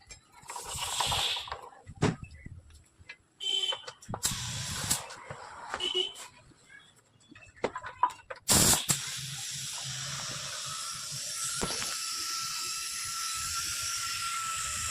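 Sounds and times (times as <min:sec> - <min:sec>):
compressed air hissing: 0:00.5 - 0:01.6, 0:04.2 - 0:05.2, 0:08.5 - 0:14.9
loud blast of air: 0:04.2 - 0:05.0, 0:08.5 - 0:10.3.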